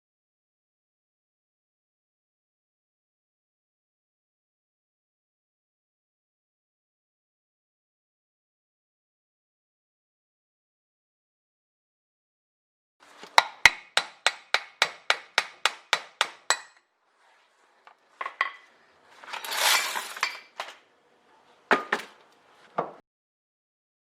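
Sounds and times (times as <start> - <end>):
metal parts rattling and scraping: 18.2 - 20.8.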